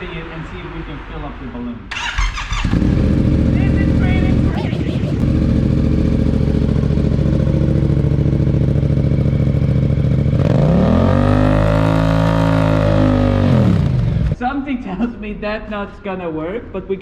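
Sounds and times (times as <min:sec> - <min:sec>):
motorcycle engine idling and revving: 0:01.9 - 0:14.4.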